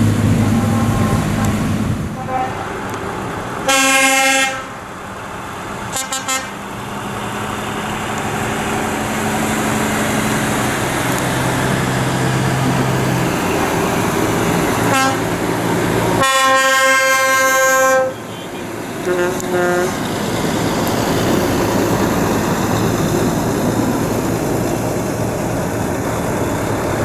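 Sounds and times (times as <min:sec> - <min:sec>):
truck engine running: 0:00.0 - 0:16.8, 0:18.2 - 0:27.0
truck horn toots: 0:00.4 - 0:02.9, 0:03.6 - 0:04.8, 0:05.9 - 0:06.6, 0:14.8 - 0:15.4, 0:16.2 - 0:20.0.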